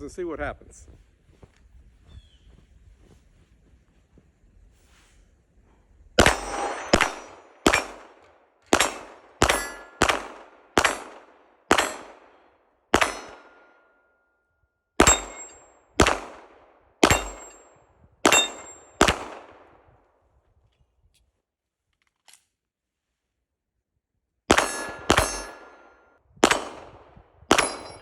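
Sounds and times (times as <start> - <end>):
steel targets ringing: 6.2 - 8.0, 8.8 - 10.1, 13.0 - 14.0, 15.0 - 15.8, 17.0 - 17.7, 18.3 - 19.0, 24.6 - 26.1, 27.6 - 28.0
pistol shots: 6.2 - 13.8, 15.0 - 19.8, 24.5 - 28.0.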